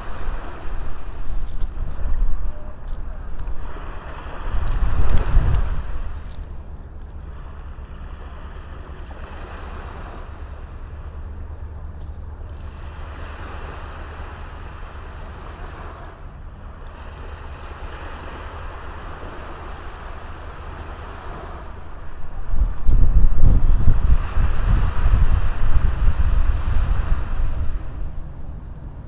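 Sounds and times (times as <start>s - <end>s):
small sea waves breaking: 0.0s - 29.0s
wind rumble on microphone: 0.0s - 29.0s.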